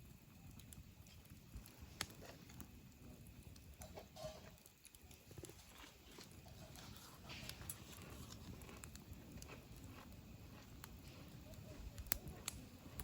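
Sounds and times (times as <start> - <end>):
campfire crackling faintly: 0.0 - 13.0.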